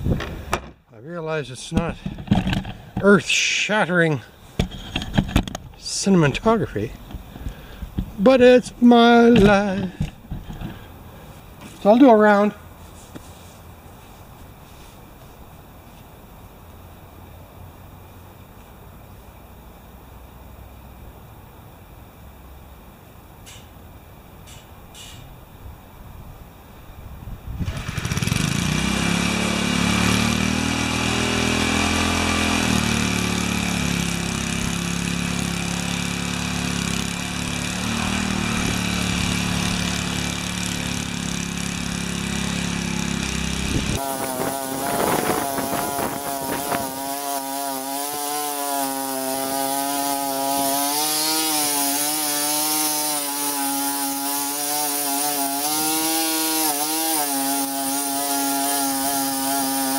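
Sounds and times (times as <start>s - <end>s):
rototiller engine churning soil: 27.6s - 59.9s.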